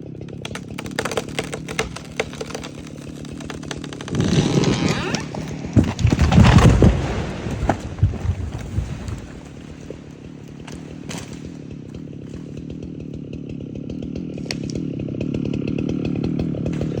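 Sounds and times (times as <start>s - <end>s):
chainsaw engine running: 0.0s - 17.0s
sharp cracks: 0.3s - 12.0s.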